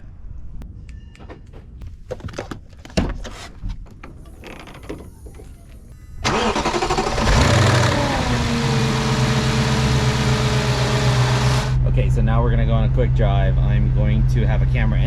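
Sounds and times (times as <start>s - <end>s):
car engine cranking and idling: 6.2s - 14.8s.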